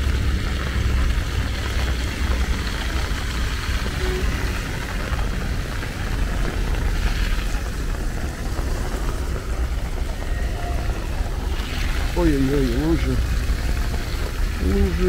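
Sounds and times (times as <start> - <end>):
low rumble: 0.0 - 15.0
rain falling: 0.0 - 15.0.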